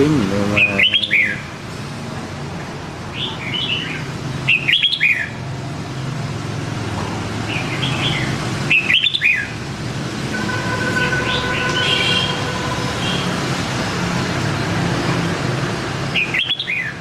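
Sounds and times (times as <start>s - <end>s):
bulbul singing warbled phrases: 0.0s - 1.6s, 3.2s - 5.4s, 7.5s - 9.6s, 11.0s - 13.4s, 16.1s - 17.0s.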